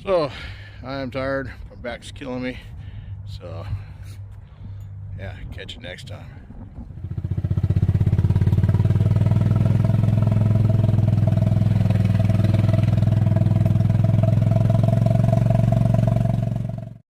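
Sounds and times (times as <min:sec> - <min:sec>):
small engine running: 0:07.0 - 0:17.0.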